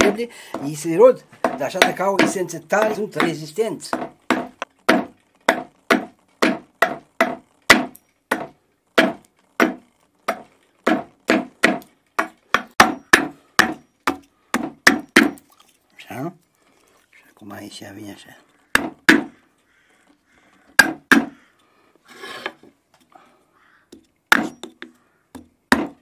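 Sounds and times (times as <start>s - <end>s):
hatchet chopping wood: 0.0s - 15.5s, 18.7s - 19.4s, 20.7s - 21.4s, 23.9s - 26.0s.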